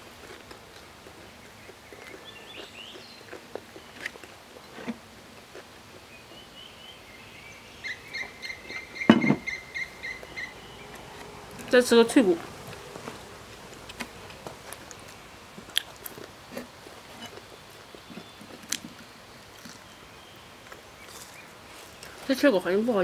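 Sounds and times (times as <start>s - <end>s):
chewing crisp food: 0.0s - 6.4s, 12.4s - 22.2s
bird calling high notes: 7.6s - 13.0s
thump: 9.1s - 9.5s.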